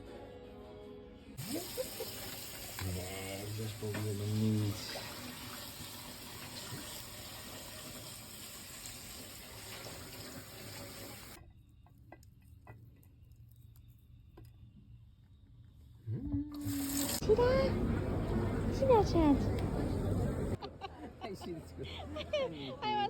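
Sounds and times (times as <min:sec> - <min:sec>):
water running from a tap: 0:01.4 - 0:11.4, 0:16.6 - 0:19.0.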